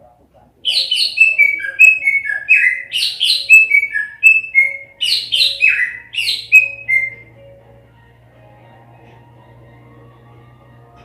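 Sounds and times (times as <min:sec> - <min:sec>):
bird singing whistled song: 0:00.6 - 0:07.3.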